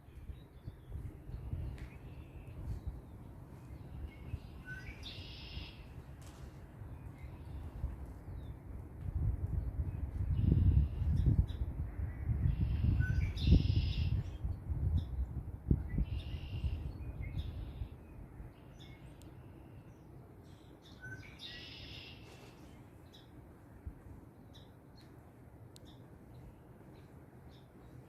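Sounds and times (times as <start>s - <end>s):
wind rumble on microphone: 0.0s - 18.8s
bird short chirps: 4.4s - 6.0s, 21.1s - 22.8s.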